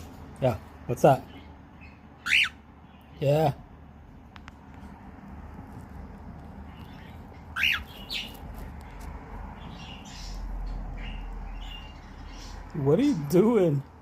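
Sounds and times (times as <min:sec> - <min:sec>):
cockatiel chirping: 0:01.3 - 0:03.1, 0:06.4 - 0:09.0.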